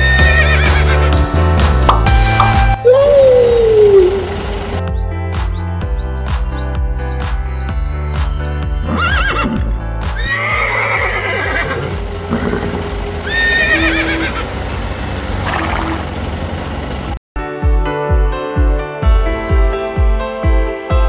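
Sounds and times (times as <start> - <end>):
horse whinnying: 0.0 - 1.0, 8.8 - 14.4
background music: 0.0 - 15.6, 17.4 - 21.0.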